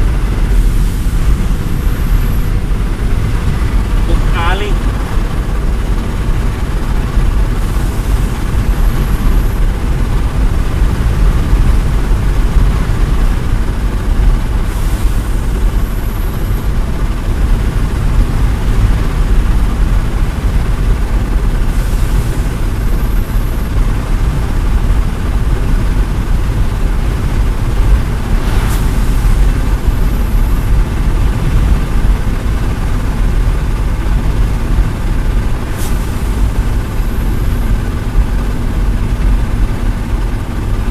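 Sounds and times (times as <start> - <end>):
pump engine running: 0.0 - 40.9
wind buffeting microphone: 0.0 - 40.9
short hiss: 28.4 - 30.2.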